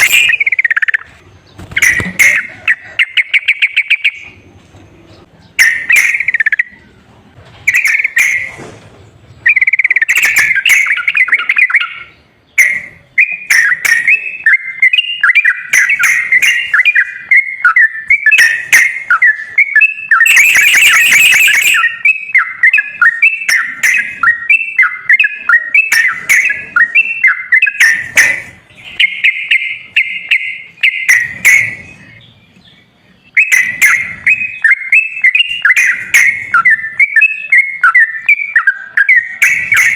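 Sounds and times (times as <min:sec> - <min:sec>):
bulbul song whistled chirps: 0:00.0 - 0:01.1, 0:05.6 - 0:06.8, 0:07.7 - 0:08.5, 0:09.4 - 0:32.3, 0:33.2 - 0:39.9
harsh buzzy bird call: 0:09.5 - 0:32.2.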